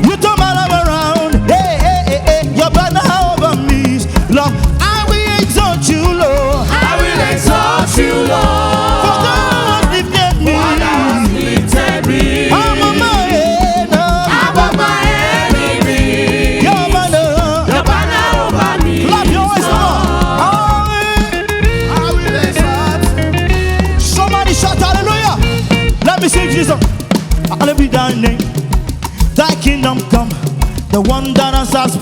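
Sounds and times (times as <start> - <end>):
person singing: 0.0 - 23.4
worship band playing gospel song: 0.0 - 32.0.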